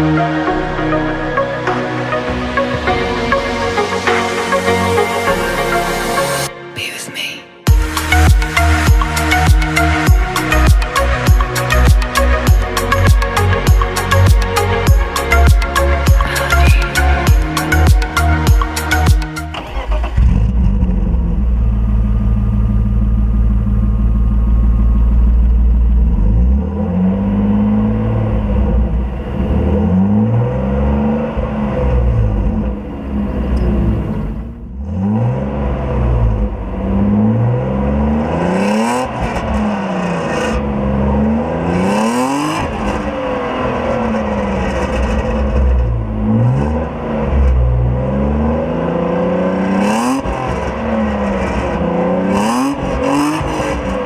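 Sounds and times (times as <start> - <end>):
car engine idling and revving: 0.0 - 6.5, 7.7 - 54.0.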